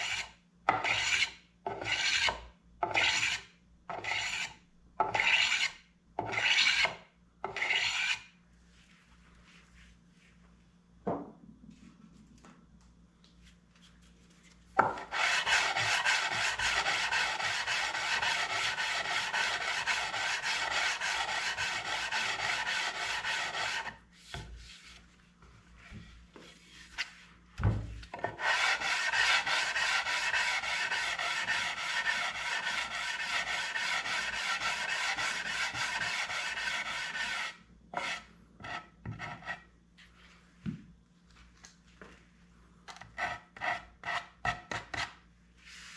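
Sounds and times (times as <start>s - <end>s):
abrasive tool scraping wood: 14.8s - 25.0s, 28.2s - 39.6s.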